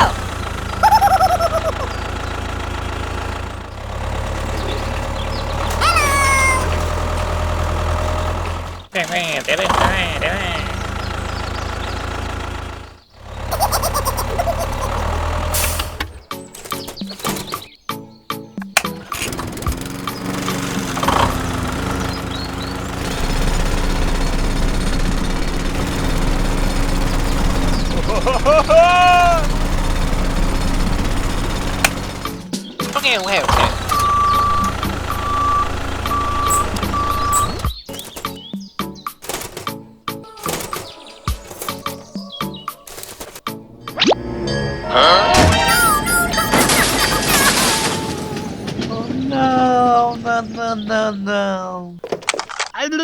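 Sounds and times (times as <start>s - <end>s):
small motor whining and rattling: 0.0s - 17.8s, 18.6s - 43.5s, 45.7s - 51.2s
tractor engine humming: 0.0s - 53.0s
high falling call: 0.8s - 2.4s, 5.7s - 7.1s, 44.2s - 51.2s.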